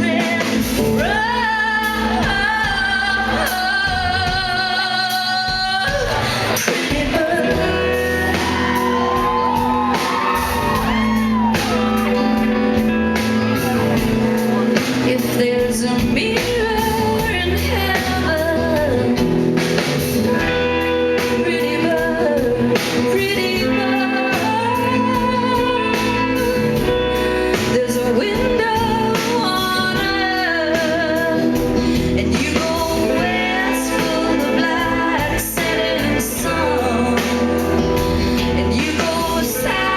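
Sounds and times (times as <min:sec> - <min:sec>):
live band with guitar: 0:00.0 - 0:39.9
woman singing: 0:00.0 - 0:39.9.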